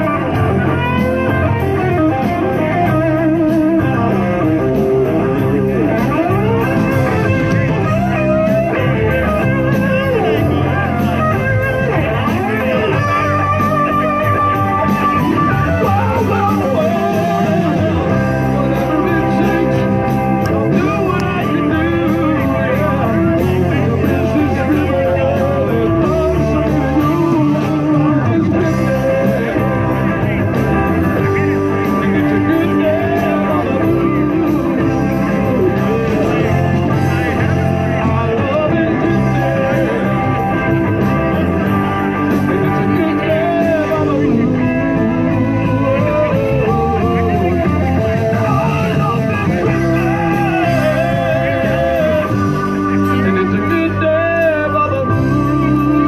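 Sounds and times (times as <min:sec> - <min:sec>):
blues-rock band playing: 0:00.0 - 0:56.0
electric guitar melody: 0:00.0 - 0:56.0.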